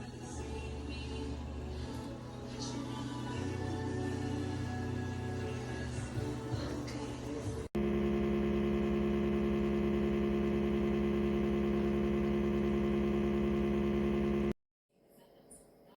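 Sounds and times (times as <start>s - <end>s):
fridge compressor humming: 7.8s - 14.6s.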